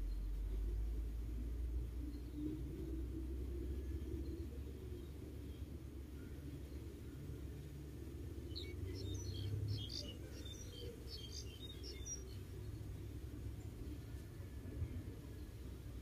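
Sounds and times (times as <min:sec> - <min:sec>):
bird chirping: 0:08.5 - 0:13.7.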